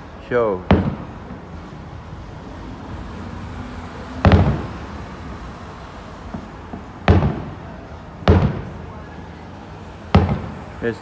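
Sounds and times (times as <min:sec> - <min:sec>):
firework boom: 0:00.7 - 0:01.7, 0:04.0 - 0:05.0, 0:06.3 - 0:09.0, 0:10.1 - 0:10.8.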